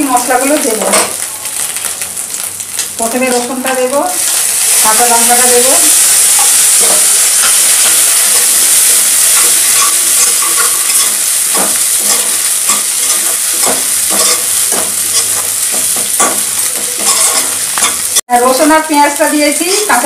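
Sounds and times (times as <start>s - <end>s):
oil sizzling in a pan: 0.0s - 20.0s
stirring scraping against pan: 9.2s - 18.1s.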